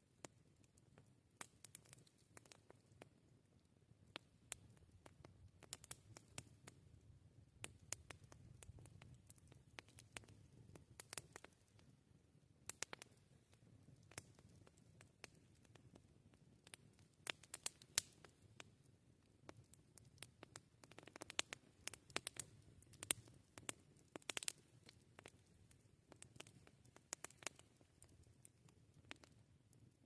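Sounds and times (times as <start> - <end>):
campfire crackling and popping: 0.0 - 30.0.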